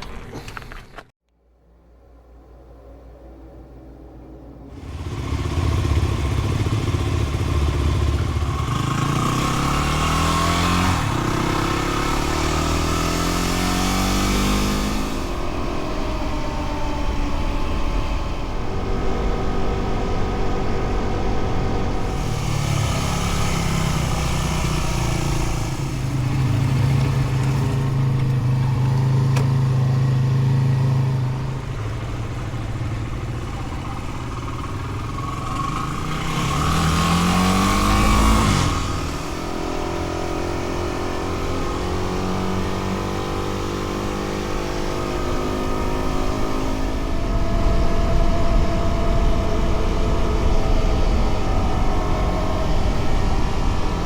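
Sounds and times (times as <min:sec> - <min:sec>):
motorcycle engine revving: 0:04.7 - 0:54.0.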